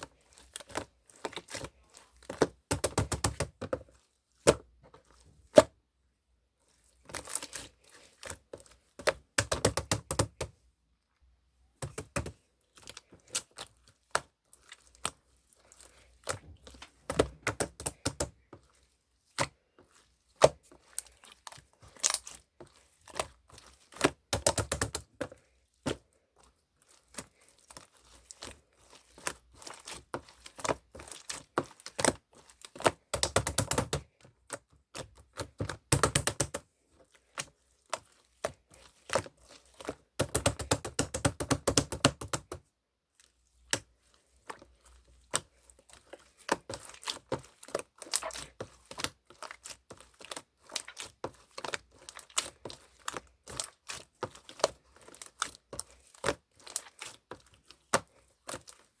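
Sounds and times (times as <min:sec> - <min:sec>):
sticky material clicking and crinkling: 0:23.2 - 0:25.3, 0:29.0 - 0:36.6.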